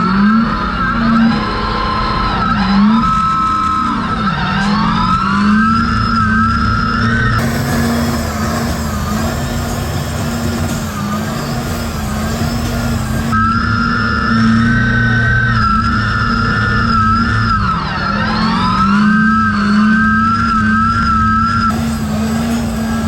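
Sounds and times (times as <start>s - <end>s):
truck engine at high revs: 4.7s - 15.2s, 15.9s - 23.0s.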